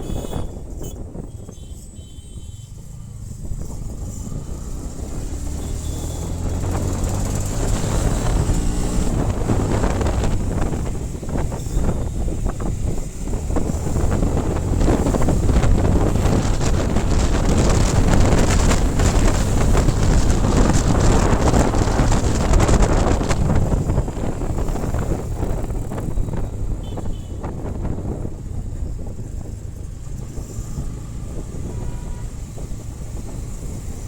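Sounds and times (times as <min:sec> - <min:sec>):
motorcycle engine rumble: 0:00.0 - 0:34.0
wind buffeting microphone: 0:00.0 - 0:34.0.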